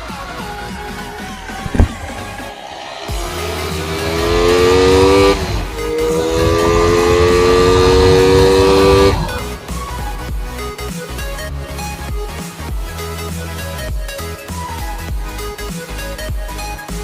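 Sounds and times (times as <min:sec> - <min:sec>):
motorcycle engine accelerating: 0:01.7 - 0:02.1.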